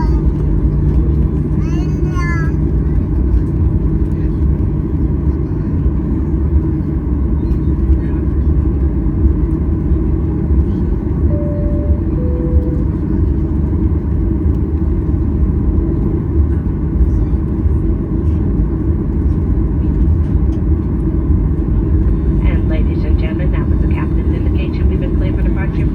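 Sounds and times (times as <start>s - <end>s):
airplane engine rumble: 0.0s - 25.9s
two-note cabin chime: 11.3s - 13.3s.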